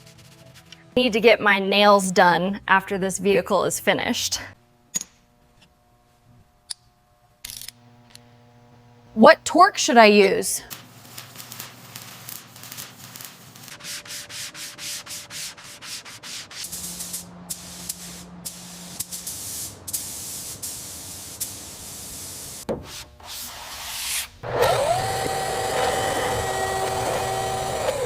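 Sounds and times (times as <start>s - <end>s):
hand sanding surface: 0.0s - 0.8s, 10.7s - 28.0s.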